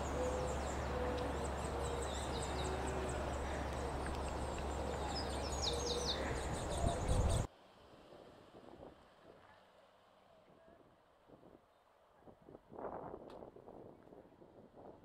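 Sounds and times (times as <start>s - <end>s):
low hooting bird notes: 0.0s - 7.5s.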